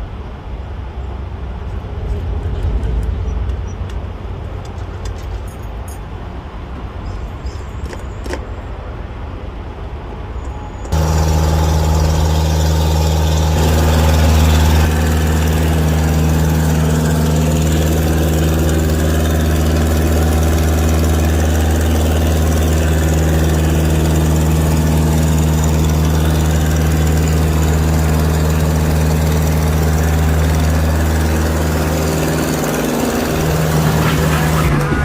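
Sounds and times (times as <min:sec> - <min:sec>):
truck engine humming: 0:10.7 - 0:35.0.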